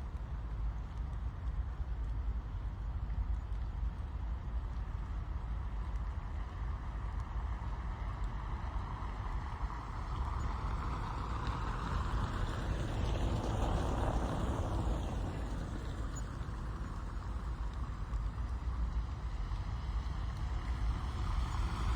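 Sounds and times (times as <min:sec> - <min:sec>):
steady rain heard inside a car: 0:00.1 - 0:21.9
vehicle passing on wet road: 0:08.8 - 0:18.0.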